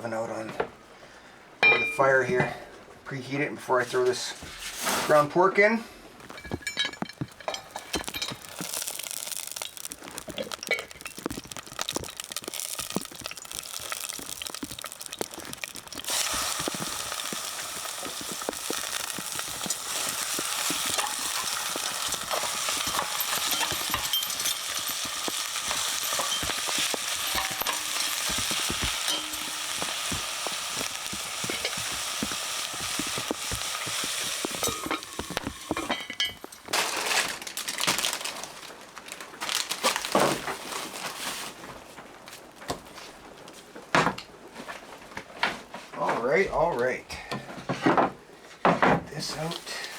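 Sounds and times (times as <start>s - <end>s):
stirring clicks and scrapes: 6.2s - 37.1s
meat sizzling in a pot: 6.2s - 38.2s, 49.3s - 49.9s.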